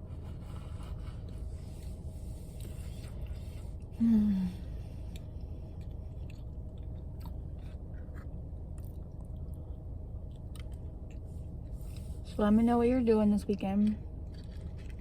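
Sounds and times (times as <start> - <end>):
person humming mm: 4.0 - 4.7
person chewing: 5.0 - 12.0, 14.2 - 15.0.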